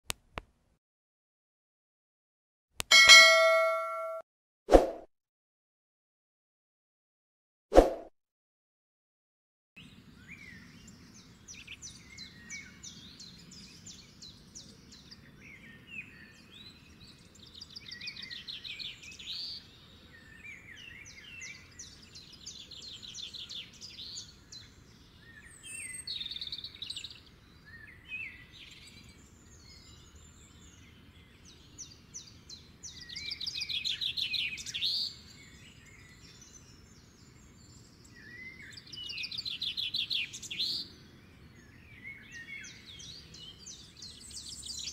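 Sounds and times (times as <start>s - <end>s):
birds chirping and trilling: 9.8s - 44.9s.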